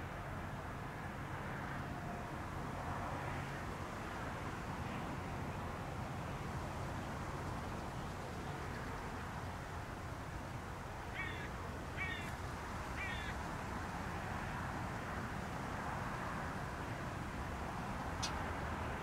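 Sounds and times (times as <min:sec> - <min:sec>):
bird cawing: 0:11.1 - 0:12.4, 0:13.0 - 0:13.4
sharp tick: 0:18.2 - 0:18.4.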